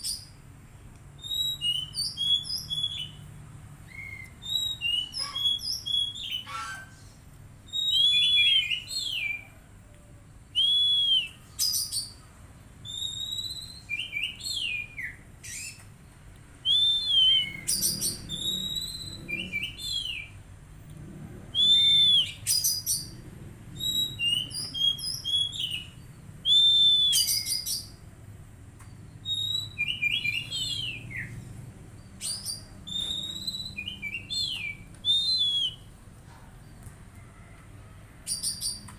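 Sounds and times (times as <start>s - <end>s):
bird singing whistled phrases: 1.2s - 3.2s, 3.9s - 6.9s, 7.7s - 9.5s, 10.5s - 12.2s, 12.8s - 15.8s, 16.6s - 20.4s, 21.6s - 23.1s, 23.8s - 28.0s, 29.2s - 31.3s, 32.2s - 35.9s.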